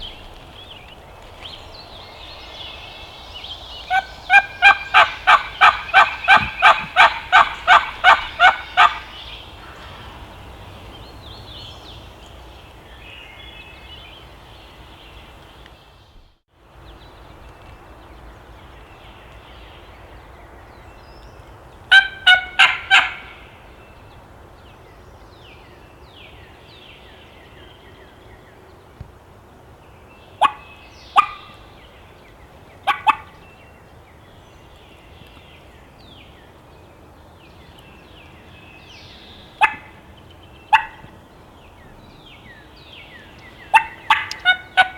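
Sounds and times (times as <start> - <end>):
turkey yelps: 3.9 - 9.1, 21.9 - 23.4, 30.4 - 31.6, 32.8 - 33.3, 39.6 - 40.0, 40.7 - 41.1, 43.7 - 44.9.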